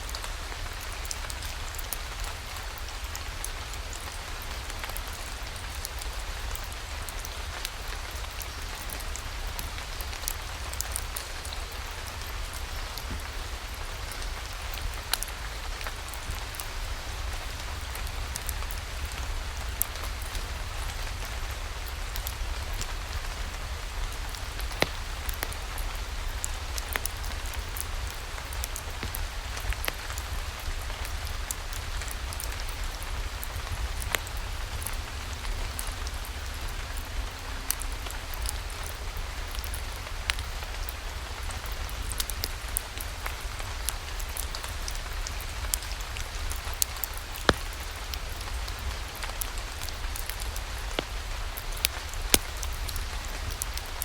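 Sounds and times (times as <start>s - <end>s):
steady rain falling: 0.0s - 54.0s
sharp clicks and pops: 47.1s - 47.7s.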